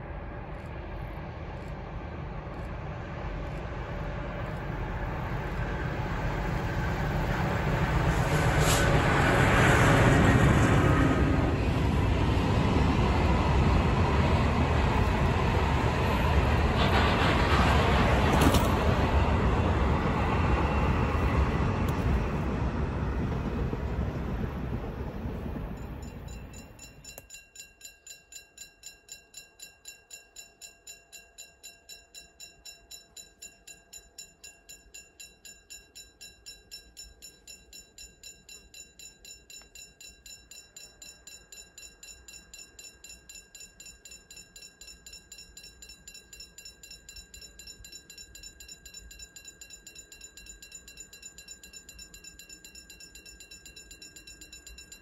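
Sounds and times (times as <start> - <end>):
level-crossing warning bell: 0.0 - 23.7, 25.5 - 55.0
freight train rumbling past: 0.0 - 27.1.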